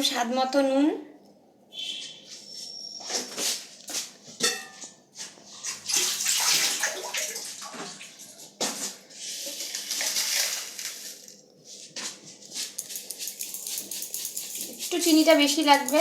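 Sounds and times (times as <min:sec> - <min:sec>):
water running and splashing: 0:05.7 - 0:08.2, 0:09.6 - 0:11.2.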